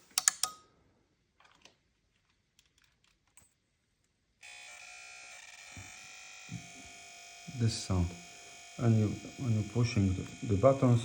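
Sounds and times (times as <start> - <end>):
television high buzz: 4.4 - 11.0.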